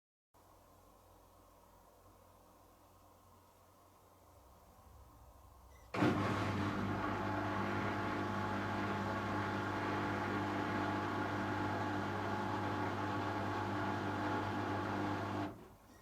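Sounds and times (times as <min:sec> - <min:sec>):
washing machine humming: 0:05.9 - 0:16.0.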